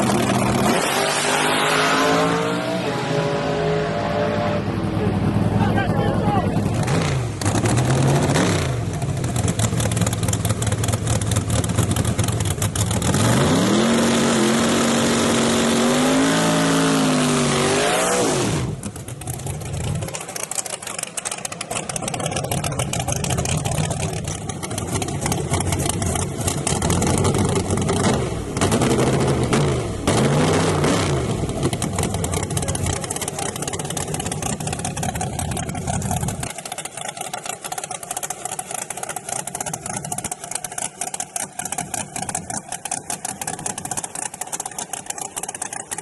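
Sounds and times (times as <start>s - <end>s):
engine hum: 0.0s - 46.0s
truck engine accelerating hard: 0.0s - 46.0s
truck engine idling: 3.9s - 13.3s, 18.7s - 30.1s, 31.2s - 46.0s.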